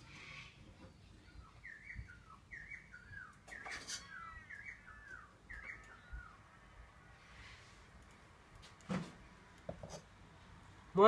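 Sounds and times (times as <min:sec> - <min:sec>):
bird chirps sliding downward: 0:00.0 - 0:06.8.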